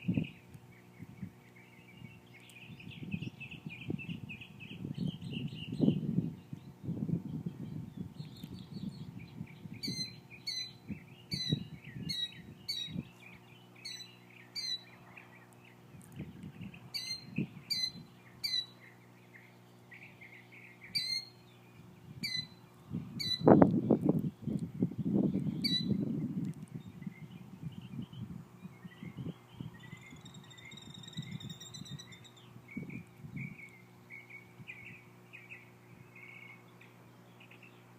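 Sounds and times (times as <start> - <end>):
bird calling: 8.2 - 15.8, 16.6 - 23.6, 25.3 - 26.0, 28.6 - 37.9.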